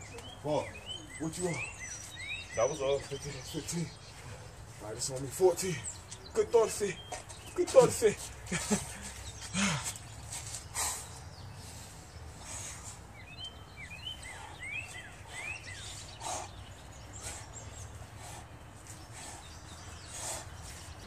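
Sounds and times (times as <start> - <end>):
bird chirping: 0.0 - 21.0.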